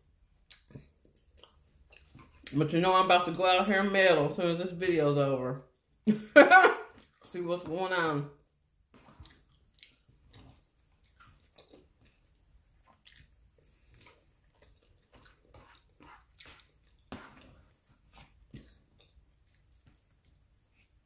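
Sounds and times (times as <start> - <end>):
person chewing: 0.4 - 2.6, 6.9 - 7.2, 9.0 - 21.0.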